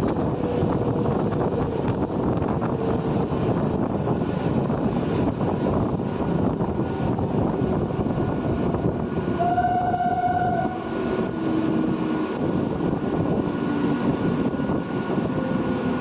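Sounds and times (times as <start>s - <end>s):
train wheels rumbling on rails: 0.0s - 16.0s
train horn: 9.4s - 11.6s.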